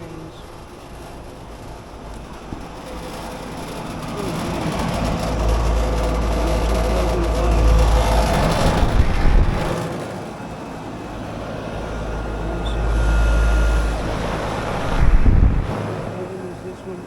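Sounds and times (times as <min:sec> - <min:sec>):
air conditioner fans rushing: 0:00.0 - 0:17.0
wind buffeting microphone: 0:00.0 - 0:17.0.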